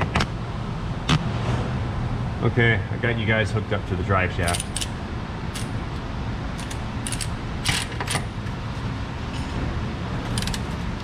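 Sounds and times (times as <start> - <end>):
low shop hum: 0.0 - 11.0.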